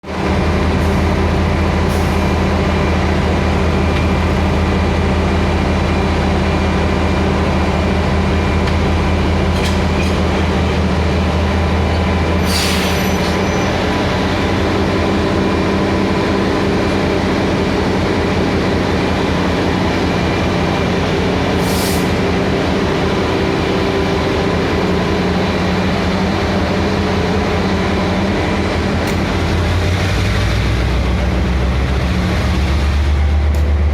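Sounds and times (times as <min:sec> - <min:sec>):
diesel locomotive idling: 0:00.0 - 0:33.9
brief hisses: 0:12.4 - 0:13.5.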